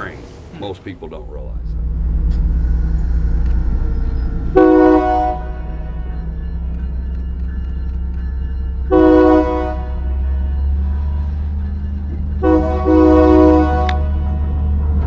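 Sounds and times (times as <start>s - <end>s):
locomotive rumble: 0.0s - 15.0s
locomotive horn blasts: 4.5s - 6.2s, 8.8s - 11.6s, 12.4s - 14.8s.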